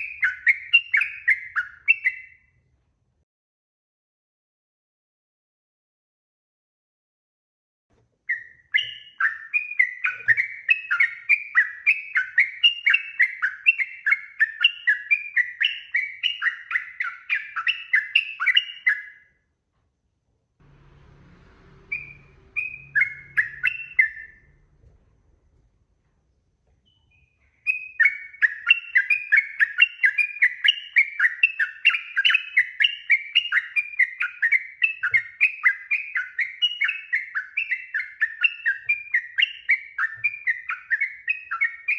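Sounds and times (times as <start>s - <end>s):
faint low hum: 19.7s - 27.5s
bird singing bubbly notes: 21.9s - 24.8s.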